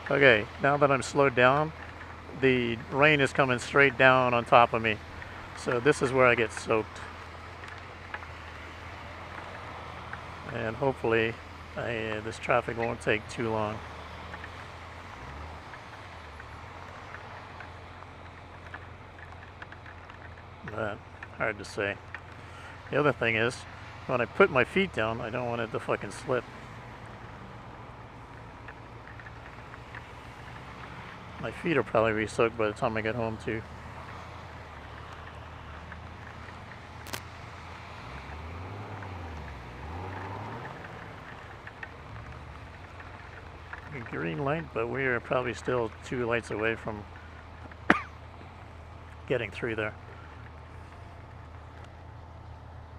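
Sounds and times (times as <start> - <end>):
raindrops tapping: 0.0 - 52.9
motorcycle engine idling: 39.7 - 52.9.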